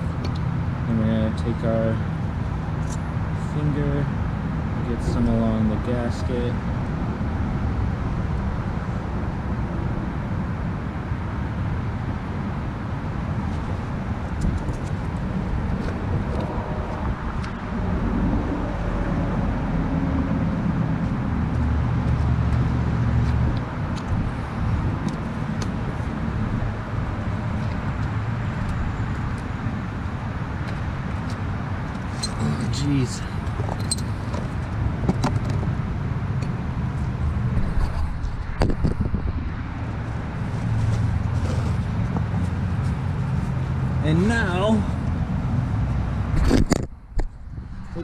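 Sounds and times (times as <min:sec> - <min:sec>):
traffic rumble: 0:00.0 - 0:48.0
vehicle engine hum: 0:00.0 - 0:48.0.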